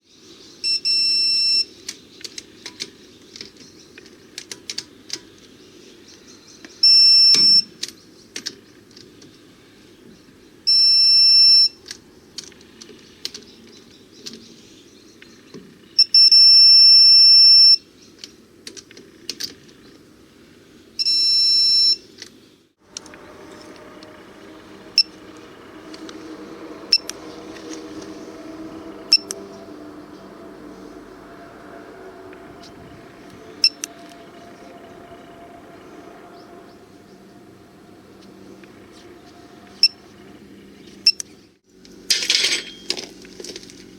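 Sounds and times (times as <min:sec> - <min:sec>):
steady low hum: 0:22.8 - 0:42.0.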